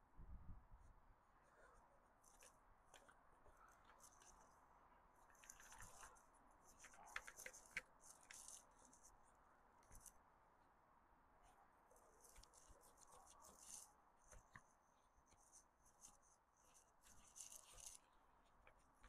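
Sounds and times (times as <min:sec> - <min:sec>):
faint clicks: 0:05.2 - 0:09.2.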